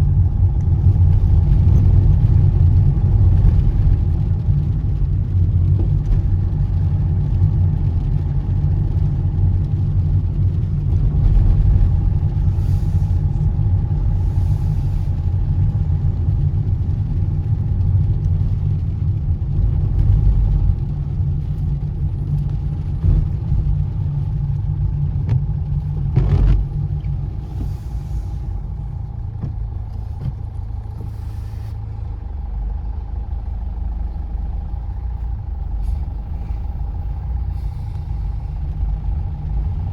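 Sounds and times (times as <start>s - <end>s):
car engine and road rumble: 0.0s - 39.9s
tyres hissing on wet road: 11.8s - 16.6s, 27.2s - 29.0s, 30.9s - 32.1s, 33.4s - 39.8s.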